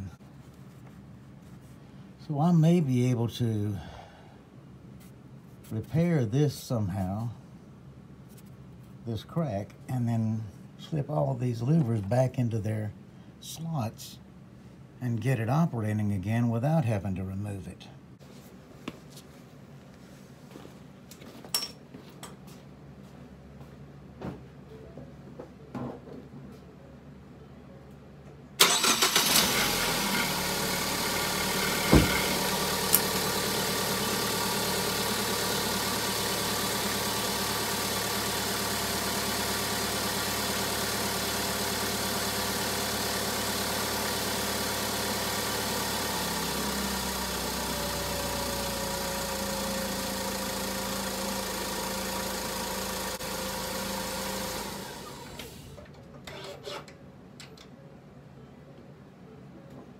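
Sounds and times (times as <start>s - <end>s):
car engine starting and idling: 28.6s - 55.8s
sharp knock: 31.9s - 32.2s.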